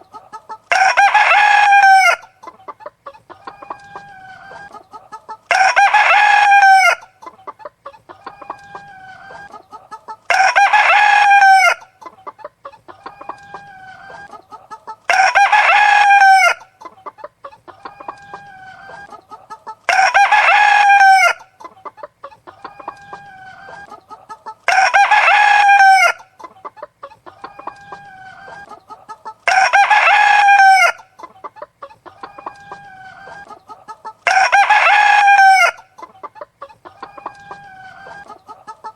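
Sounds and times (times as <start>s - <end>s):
soft chicken calls: 0.0s - 38.9s
rooster crowing: 0.7s - 2.3s, 5.5s - 7.1s, 10.3s - 11.9s, 15.1s - 16.7s, 19.9s - 21.5s, 24.7s - 26.3s, 29.5s - 31.1s, 34.2s - 35.9s.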